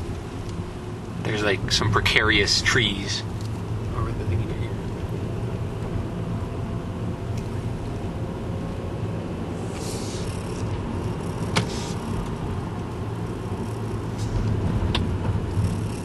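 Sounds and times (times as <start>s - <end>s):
car cabin road and engine rumble: 0.0s - 16.0s
short hiss: 9.6s - 10.3s, 11.6s - 12.1s.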